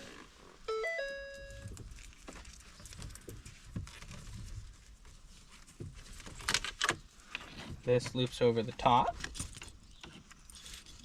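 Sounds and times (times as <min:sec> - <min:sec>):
dashboard warning chime: 0:00.0 - 0:01.8.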